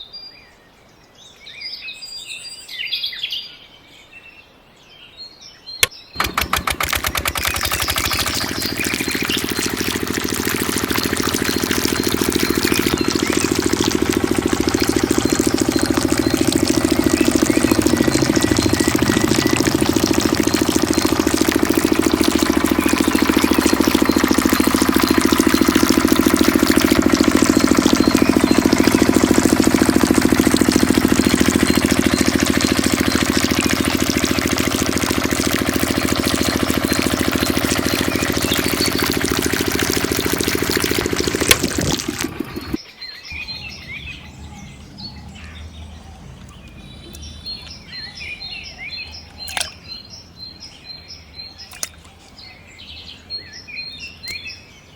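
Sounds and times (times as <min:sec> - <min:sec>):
birds chirping: 0:05.8 - 0:54.9
small diesel engine running: 0:06.2 - 0:50.5.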